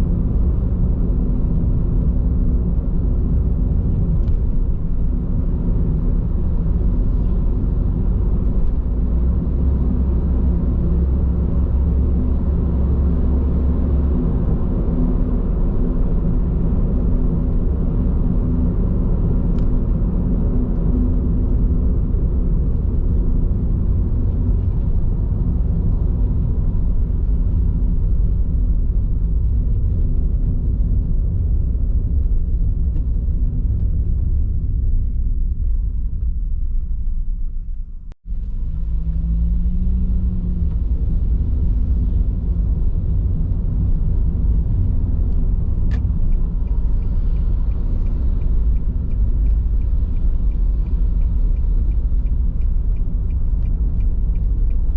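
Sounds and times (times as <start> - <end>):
road and tyre rumble in car: 0.0 - 54.9.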